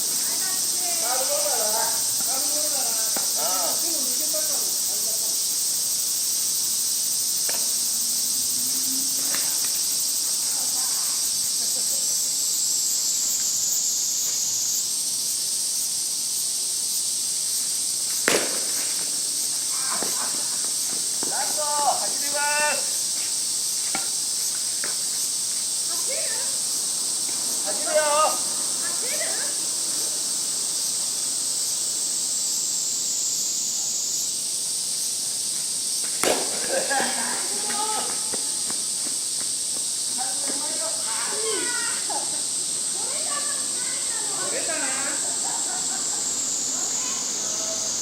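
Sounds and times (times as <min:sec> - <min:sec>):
insects buzzing: 0:00.0 - 0:48.0
bat cracking a ball: 0:18.1 - 0:21.4, 0:36.0 - 0:37.0.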